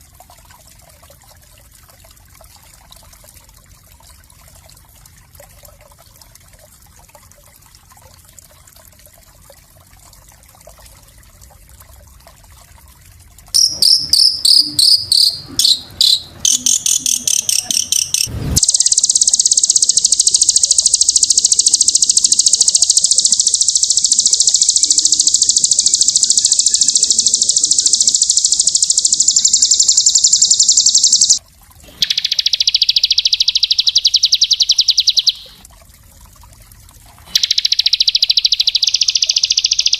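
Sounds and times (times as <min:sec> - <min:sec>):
fast high-pitched bird trill: 0:13.6 - 0:31.4, 0:32.0 - 0:35.6, 0:37.4 - 0:39.9
small songbird singing: 0:13.6 - 0:31.4, 0:32.0 - 0:35.6, 0:37.4 - 0:39.9.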